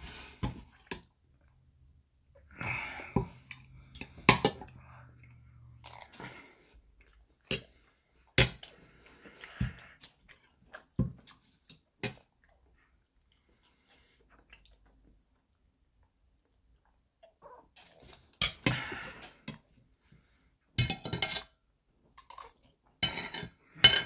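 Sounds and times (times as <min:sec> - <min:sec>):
chewing and mouth sounds: 0:03.4 - 0:18.4, 0:22.2 - 0:23.0.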